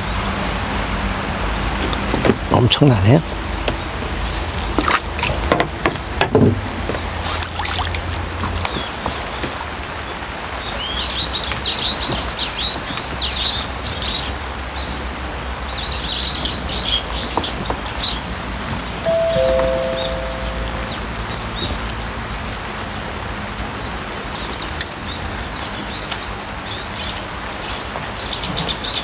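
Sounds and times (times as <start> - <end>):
light rain on a pond: 2.8 - 29.0
songbird chirping: 19.1 - 21.9.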